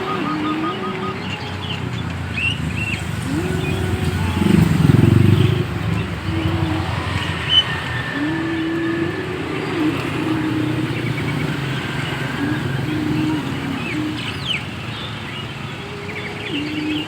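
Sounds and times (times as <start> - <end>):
bird chirps: 0.0 - 8.2
road traffic: 0.0 - 17.0
vehicle passing loudly: 0.0 - 17.0.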